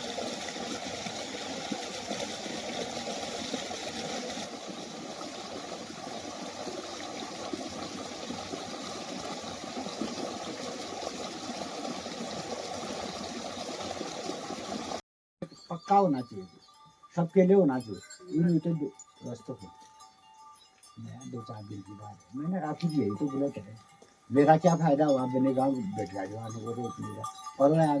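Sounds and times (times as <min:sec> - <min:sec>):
waterfall rushing and splashing: 0:00.0 - 0:15.0.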